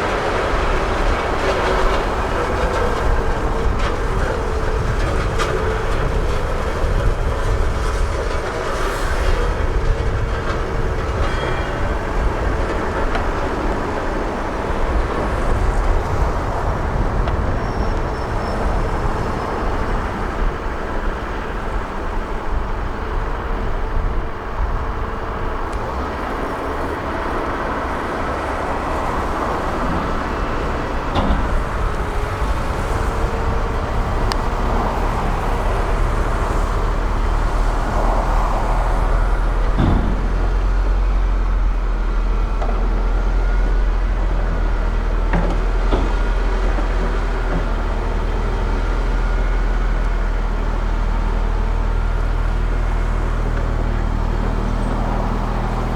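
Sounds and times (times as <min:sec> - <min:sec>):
diesel engine rumble: 0:00.0 - 0:55.9.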